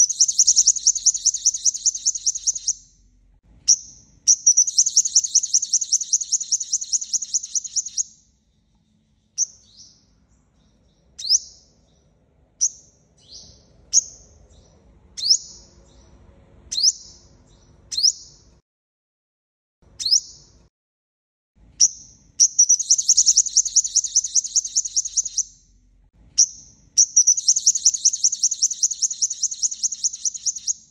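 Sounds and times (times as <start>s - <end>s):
sunbird chip calls: 0.0s - 2.9s, 3.7s - 8.2s, 21.8s - 25.6s, 26.4s - 30.9s
sunbird high-pitched trill: 0.0s - 3.0s, 3.7s - 8.2s, 21.8s - 25.8s, 26.4s - 30.9s.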